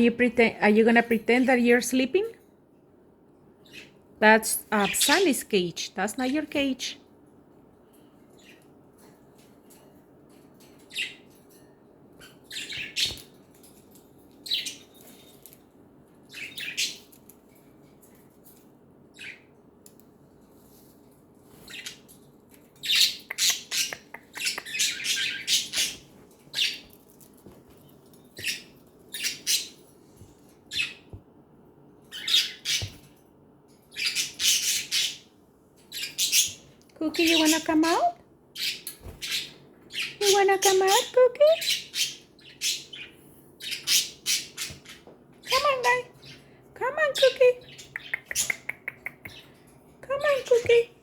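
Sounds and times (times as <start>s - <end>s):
budgerigars chirping: 22.8s - 26.8s, 32.1s - 33.0s, 33.9s - 35.3s, 35.9s - 38.0s, 38.6s - 46.4s.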